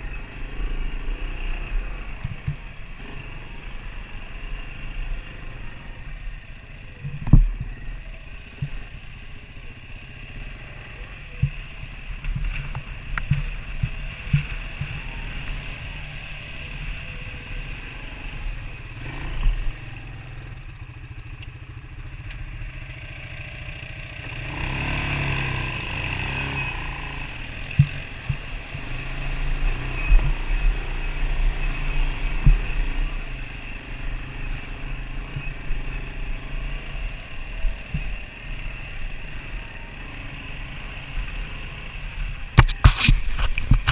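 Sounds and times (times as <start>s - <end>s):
off-road vehicle engine running: 0.0s - 43.9s.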